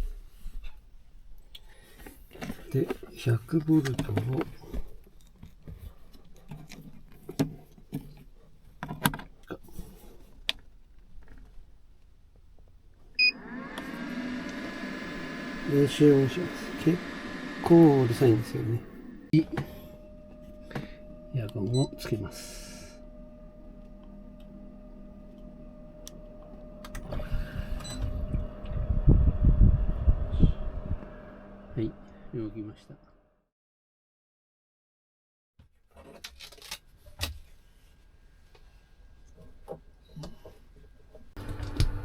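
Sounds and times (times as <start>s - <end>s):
air conditioner humming: 9.4s - 33.1s
loud rough noise: 14.3s - 19.3s
faint high tone: 19.4s - 28.7s
small clicks and knocks of gear: 36.0s - 37.4s.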